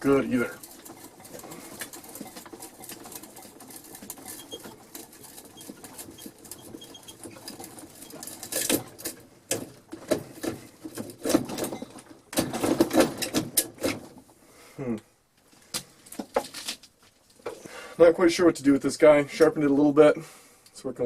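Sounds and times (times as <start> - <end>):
hand drill scraping into wood: 0.0 - 12.0.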